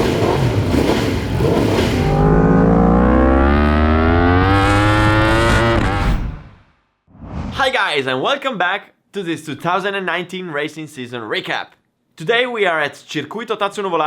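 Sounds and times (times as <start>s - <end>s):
motorcycle engine accelerating: 0.0s - 6.6s.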